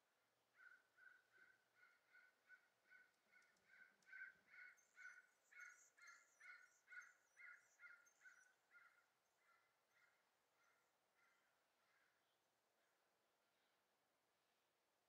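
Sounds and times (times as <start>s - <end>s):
faint bird calling: 0.6s - 12.2s.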